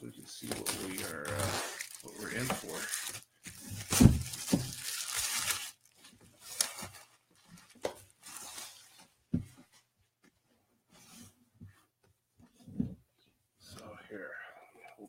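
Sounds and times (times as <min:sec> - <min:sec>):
cardboard scraping and rustling: 0:00.5 - 0:05.6.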